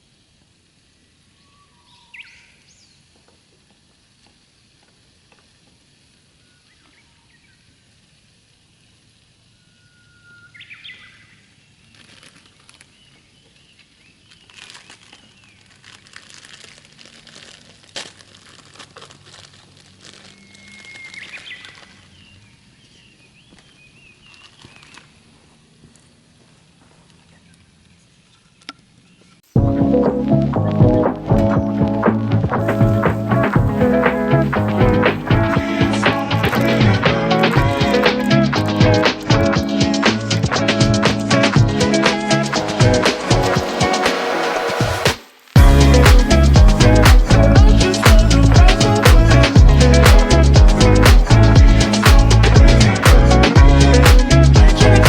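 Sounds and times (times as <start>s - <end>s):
dense crackling clicks: 30.9s - 55.0s.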